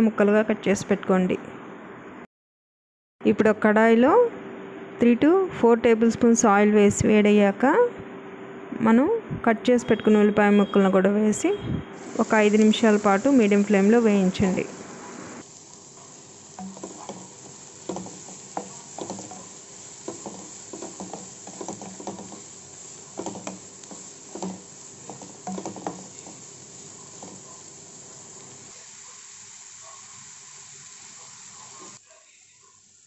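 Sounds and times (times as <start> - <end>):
onions sizzling in hot oil: 12.0 - 33.0.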